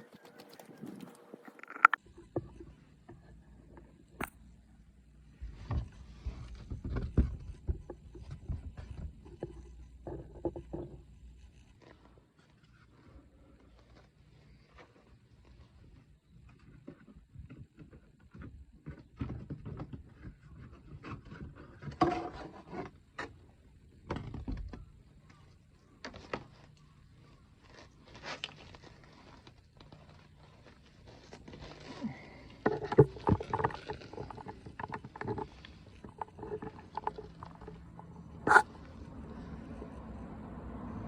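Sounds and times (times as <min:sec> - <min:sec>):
tools knocking and scraping: 0:01.5 - 0:02.6.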